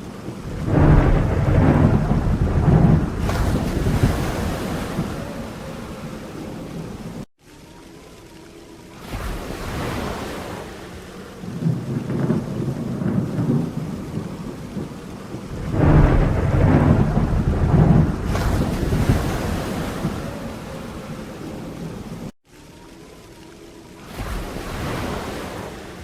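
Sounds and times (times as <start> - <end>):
rain falling: 0.0 - 26.0
rolling thunder: 0.1 - 7.3, 11.4 - 22.3.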